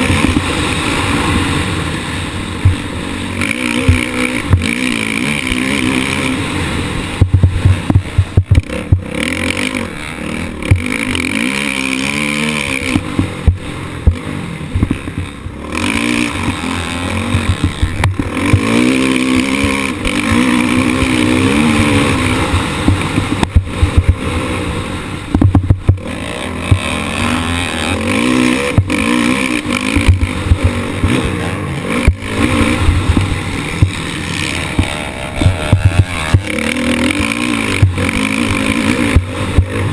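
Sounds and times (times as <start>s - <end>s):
motocross bike engine revving: 0.0s - 39.9s
sharp knocks and clatter: 7.2s - 9.8s, 10.6s - 24.2s, 25.3s - 27.0s, 28.1s - 31.4s, 32.0s - 39.8s.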